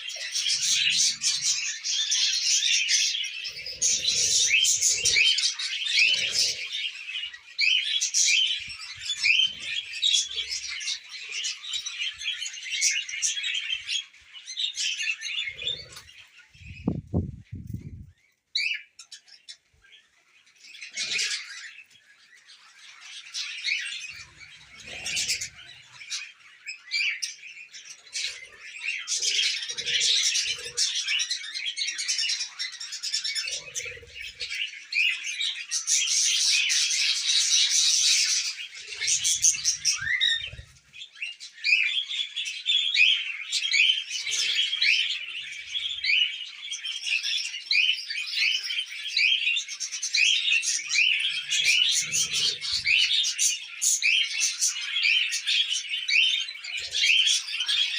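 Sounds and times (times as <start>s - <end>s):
budgerigars chattering: 41.7s - 57.9s.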